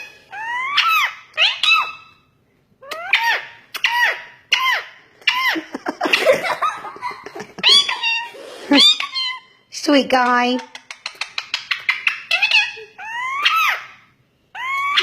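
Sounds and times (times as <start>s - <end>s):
parrot squeaky calls: 0.0s - 6.3s, 7.6s - 9.7s, 10.6s - 15.0s.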